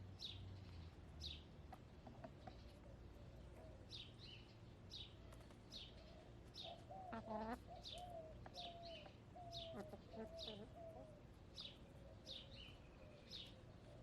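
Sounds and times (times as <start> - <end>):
songbird chirping: 0.0 - 14.0
hens murmuring: 6.7 - 11.2.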